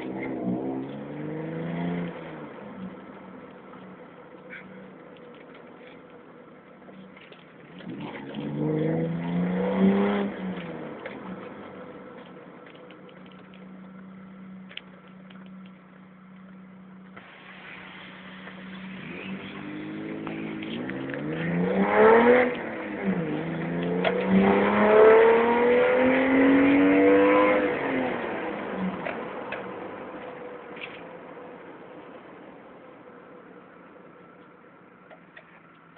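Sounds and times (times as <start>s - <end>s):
car engine idling and revving: 0.0s - 35.9s.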